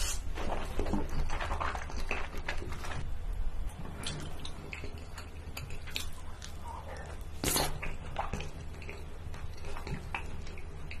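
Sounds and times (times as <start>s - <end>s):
wet mouth eating sounds: 4.4s - 11.0s.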